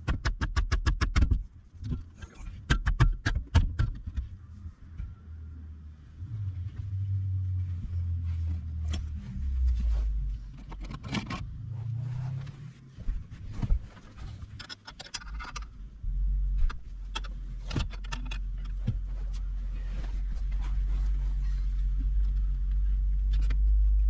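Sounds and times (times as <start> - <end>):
low rumble: 4.3 - 14.6, 15.2 - 24.0.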